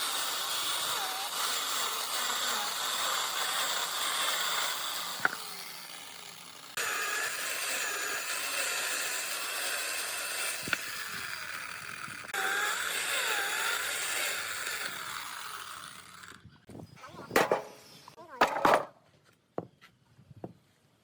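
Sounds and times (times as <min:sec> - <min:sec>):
power tool whirring: 0:00.0 - 0:16.5.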